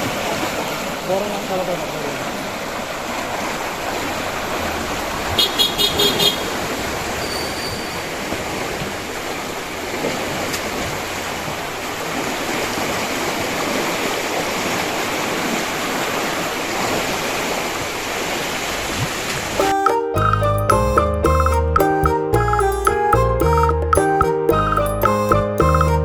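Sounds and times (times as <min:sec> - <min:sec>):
water rushing through sluice gate: 0:00.0 - 0:19.7
background music: 0:19.6 - 0:26.0.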